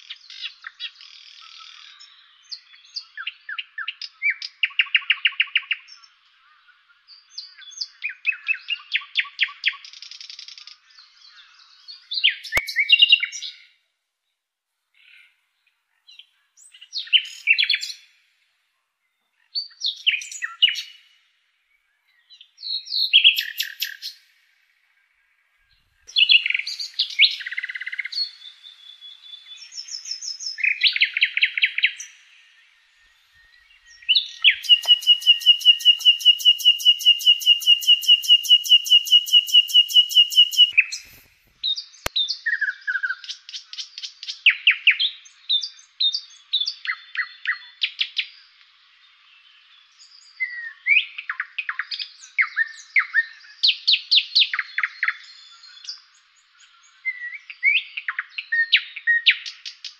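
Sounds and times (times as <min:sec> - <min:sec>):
songbirds chirping and whistling: 0:00.0 - 0:13.8, 0:15.0 - 0:18.4, 0:19.0 - 0:59.9
rapid bird trill: 0:33.8 - 0:41.1.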